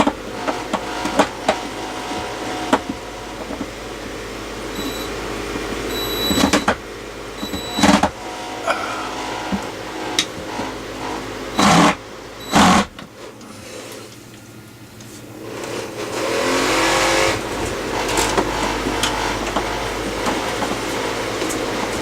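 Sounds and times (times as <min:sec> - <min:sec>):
power tool motor running: 0:00.0 - 0:13.0
power tool bursts: 0:05.8 - 0:06.8, 0:11.6 - 0:12.9.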